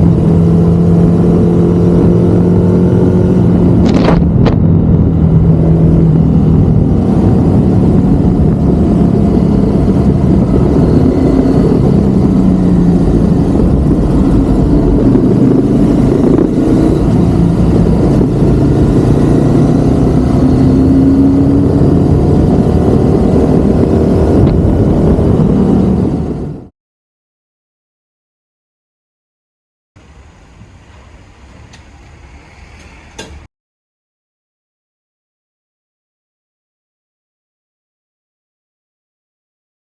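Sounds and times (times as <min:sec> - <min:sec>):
motorcycle engine running: 0:00.0 - 0:26.7
road and wind noise: 0:00.0 - 0:26.7, 0:30.0 - 0:33.5.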